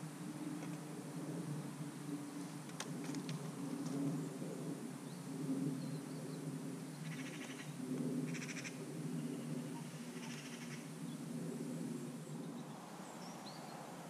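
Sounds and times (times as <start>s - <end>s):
steady low hum: 0.0s - 14.0s
rattling bird calls: 7.0s - 7.7s, 9.4s - 10.9s.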